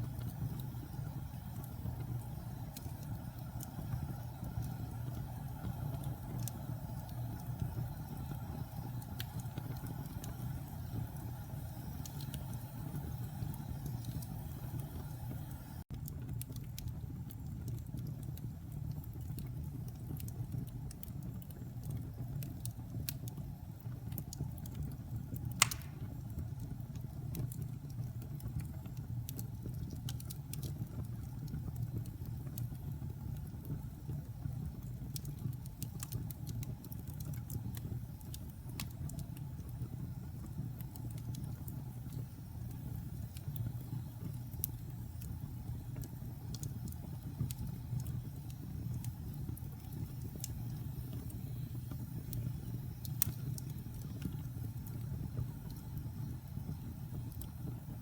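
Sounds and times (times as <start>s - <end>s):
fire crackles: 0.0s - 58.0s
fire rumbling in fireplace: 0.0s - 58.0s
sharp pop of fire: 25.6s - 26.2s.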